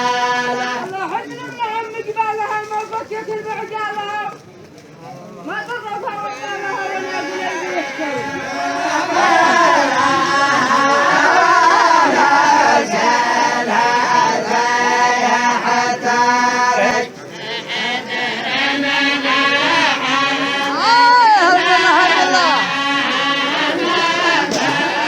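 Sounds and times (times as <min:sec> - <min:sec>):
group chanting in unison: 0:00.0 - 0:01.0, 0:06.3 - 0:25.0.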